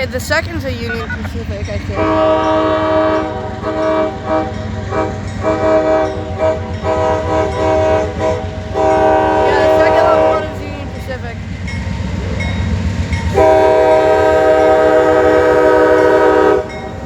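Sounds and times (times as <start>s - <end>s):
passing train rumble: 0.0s - 17.0s
locomotive air horn blasts: 2.0s - 11.2s, 13.3s - 17.0s.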